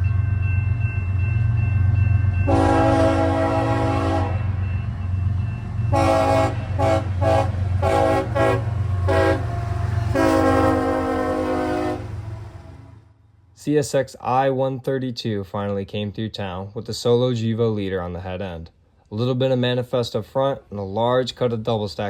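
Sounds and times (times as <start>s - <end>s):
locomotive engine rumble: 0.0s - 13.2s
locomotive air horn: 2.5s - 4.6s, 5.9s - 13.1s.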